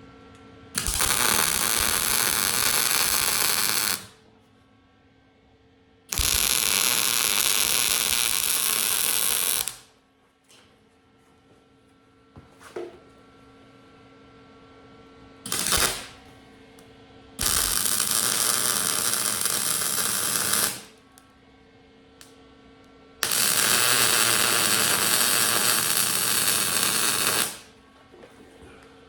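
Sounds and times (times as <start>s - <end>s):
arc welding crackle: 0.8s - 4.2s, 6.1s - 9.9s, 15.5s - 16.2s, 17.4s - 21.0s, 23.2s - 27.8s.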